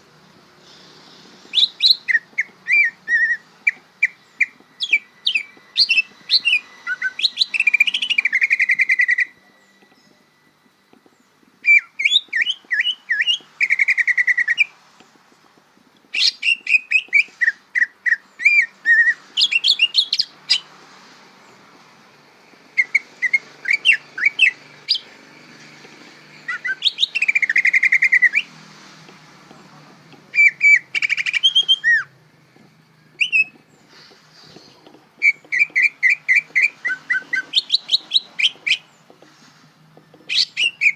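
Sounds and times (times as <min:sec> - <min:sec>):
bird chirping and trilling: 0:01.4 - 0:10.5, 0:11.1 - 0:14.8, 0:16.1 - 0:20.8, 0:22.7 - 0:28.6, 0:30.3 - 0:32.2, 0:32.8 - 0:39.1, 0:40.2 - 0:40.9.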